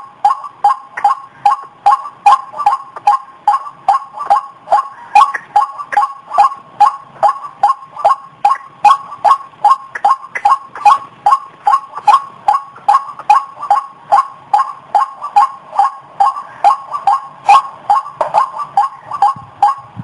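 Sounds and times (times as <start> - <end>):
waterhen calling: 0.2 - 20.0.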